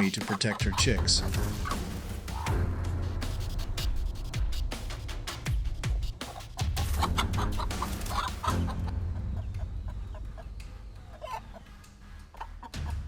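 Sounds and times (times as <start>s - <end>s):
hen clucking rapidly: 0.0s - 2.6s, 5.9s - 13.0s
low background music: 0.0s - 13.0s.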